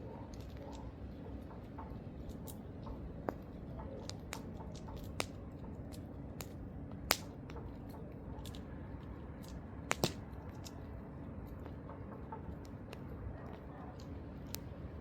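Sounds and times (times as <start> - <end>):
campfire crackling and popping: 0.3 - 11.8.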